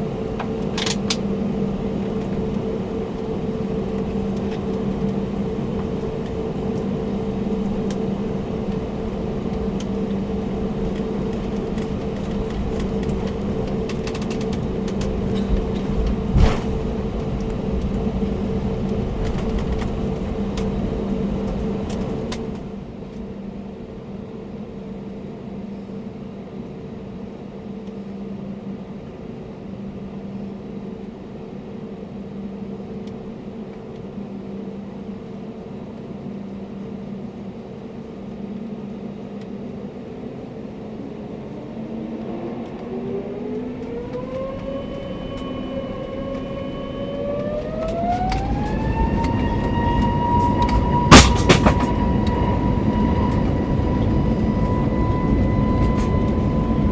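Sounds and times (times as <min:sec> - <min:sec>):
vehicle engine hum: 0:00.0 - 0:23.7, 0:40.6 - 0:56.9.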